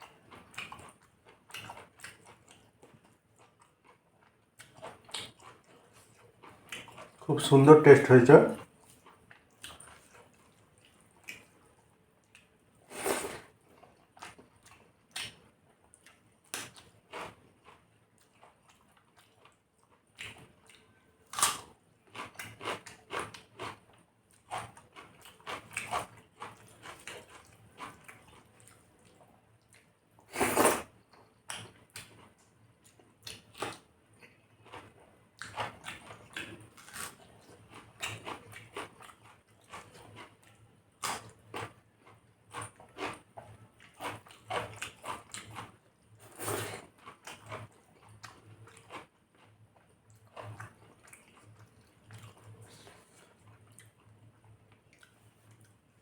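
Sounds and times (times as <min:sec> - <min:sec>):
wet mouth smacks and chewing: 0:08.9 - 0:11.6, 0:54.8 - 0:55.8.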